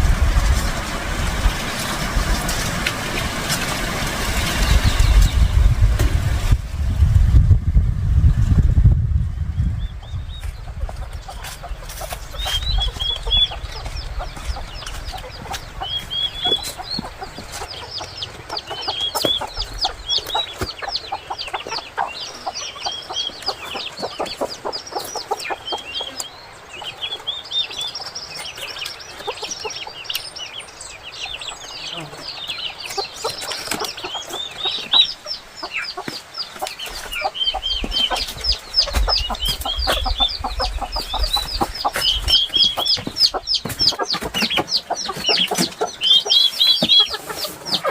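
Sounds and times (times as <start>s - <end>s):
chicks peeping: 0.0s - 6.6s, 8.9s - 47.9s.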